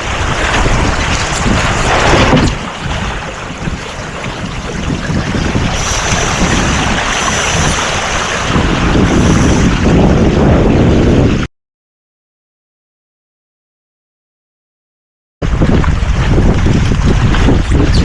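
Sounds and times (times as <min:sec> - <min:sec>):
water rushing along hull: 0:00.0 - 0:11.5, 0:15.4 - 0:18.0
wind buffeting microphone: 0:00.0 - 0:11.5, 0:15.4 - 0:18.0.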